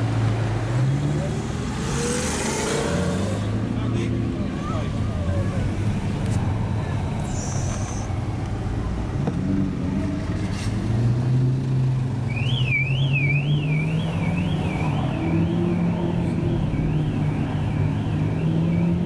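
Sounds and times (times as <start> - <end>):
warbling siren: 12.4 - 19.0.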